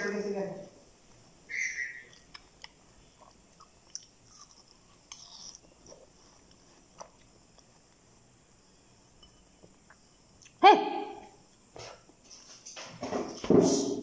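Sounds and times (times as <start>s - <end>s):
person chewing watermelon: 2.1s - 8.1s.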